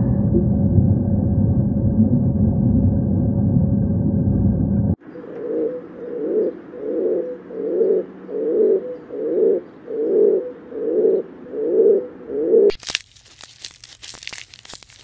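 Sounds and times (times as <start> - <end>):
pigeon cooing: 5.0 - 12.7.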